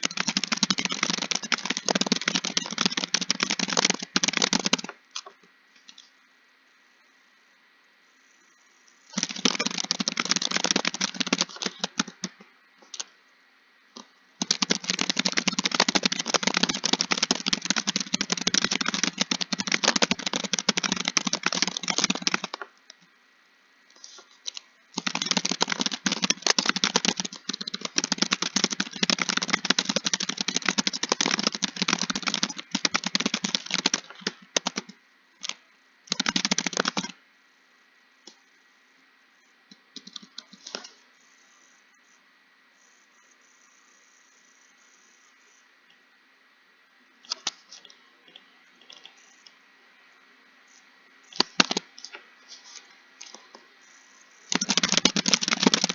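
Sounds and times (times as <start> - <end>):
fast typing on keyboard: 0.0 - 5.0, 9.1 - 12.4, 14.4 - 22.7, 24.1 - 37.2, 40.0 - 40.8, 51.3 - 51.8, 53.2 - 55.9.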